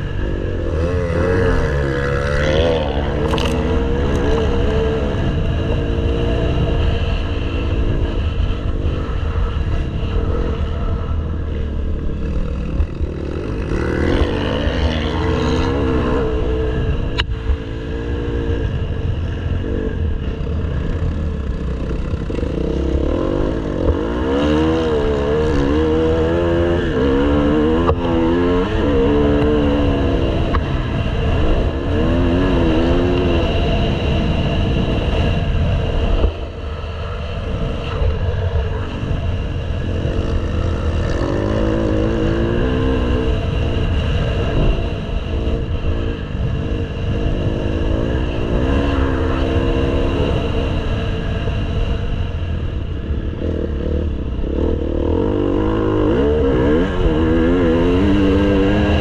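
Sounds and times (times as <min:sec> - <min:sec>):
motocross engine revving: 0:00.0 - 0:18.6, 0:37.8 - 0:44.7, 0:45.5 - 0:50.9, 0:53.2 - 0:59.0.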